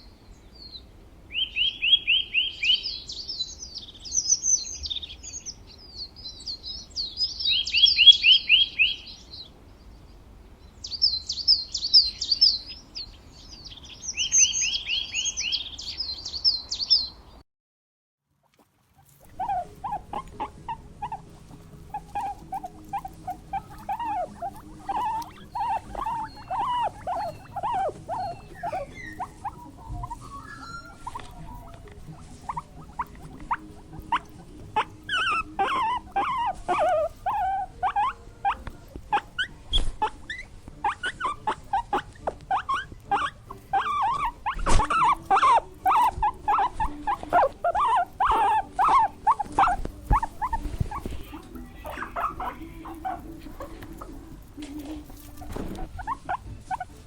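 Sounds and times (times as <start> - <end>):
small animals squeaking: 7.2 - 9.0, 18.4 - 57.0.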